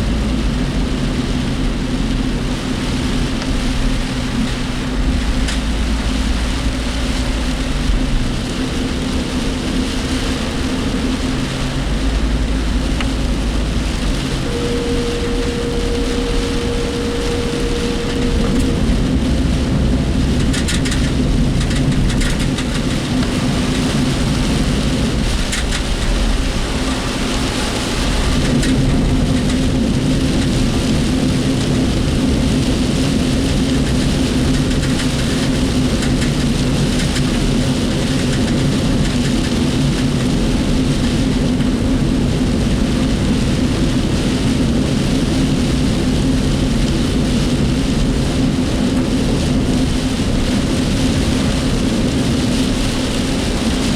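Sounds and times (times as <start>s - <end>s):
rain hitting vehicle body: 0.0s - 53.9s
vehicle engine and road noise: 0.0s - 53.9s
cab rattling: 4.0s - 42.4s.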